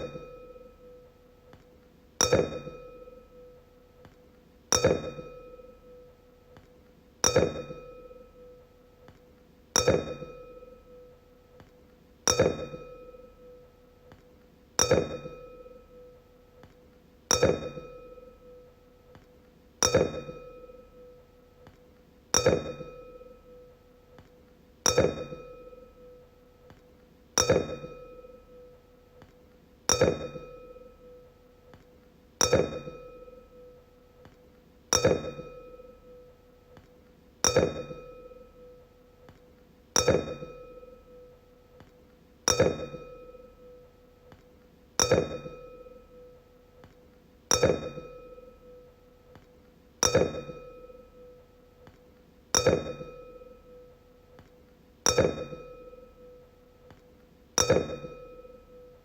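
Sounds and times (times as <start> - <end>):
wine glass struck ringing: 0.0 - 0.8, 2.2 - 3.4, 4.7 - 6.0, 7.2 - 8.5, 9.8 - 10.9, 19.8 - 21.2, 24.9 - 26.2, 27.4 - 28.7, 29.9 - 31.2, 32.4 - 33.8, 34.9 - 36.3, 37.4 - 38.8, 40.0 - 41.3, 42.5 - 43.8, 45.0 - 46.3, 50.0 - 51.4, 52.6 - 53.9, 55.1 - 56.4, 57.6 - 59.0.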